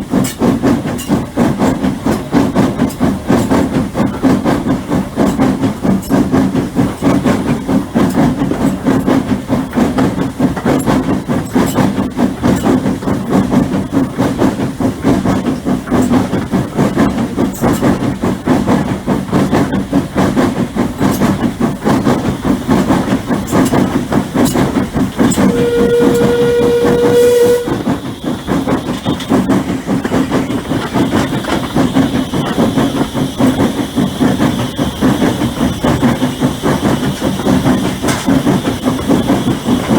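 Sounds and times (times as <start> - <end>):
steam train rumble and clatter: 0.0 - 39.9
steam hissing: 20.0 - 39.9
steam whistle: 25.4 - 28.0.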